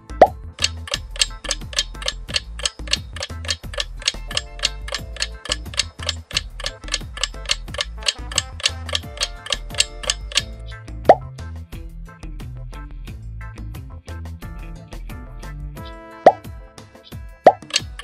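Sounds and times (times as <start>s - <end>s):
background music with bass line: 0.0s - 18.0s
clock ticking: 0.2s - 10.6s, 17.5s - 18.0s.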